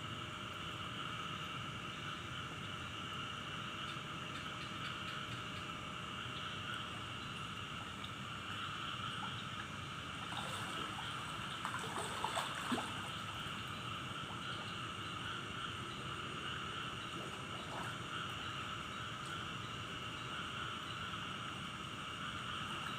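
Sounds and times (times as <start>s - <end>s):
trickling water: 3.8s - 20.4s
brief splashes: 10.2s - 13.1s.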